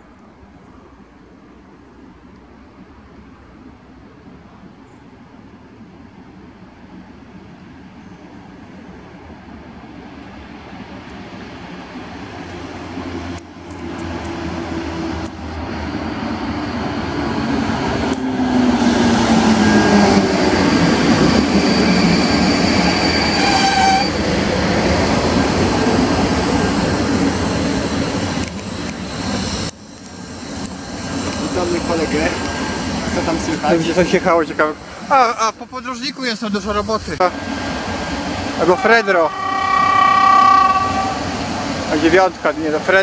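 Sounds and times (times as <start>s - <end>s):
electric train passing: 0.0s - 43.0s
high brake squeals: 21.2s - 24.2s, 38.6s - 42.1s
train hum falling in pitch: 37.4s - 42.2s.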